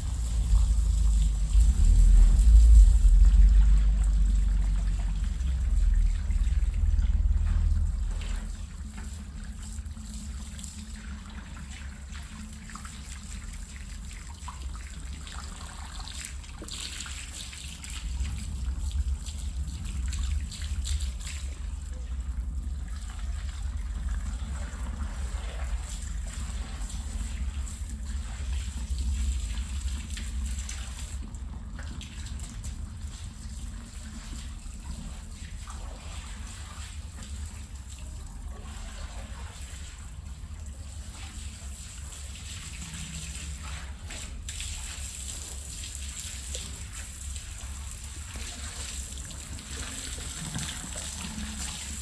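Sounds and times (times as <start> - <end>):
low rumble: 0.0 - 9.1
water trickling and splashing: 0.0 - 52.0.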